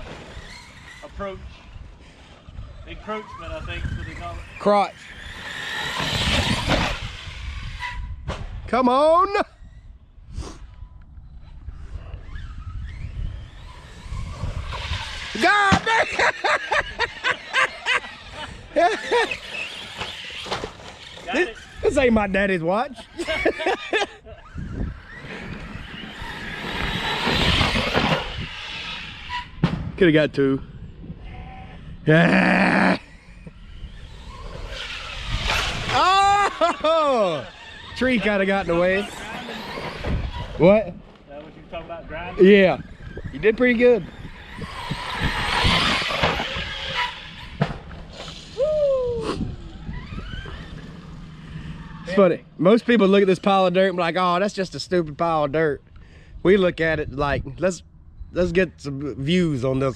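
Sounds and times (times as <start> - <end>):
rc truck motor whirring: 0.0 - 8.6, 9.6 - 29.6, 32.8 - 54.9
electric motor whine: 42.3 - 48.6.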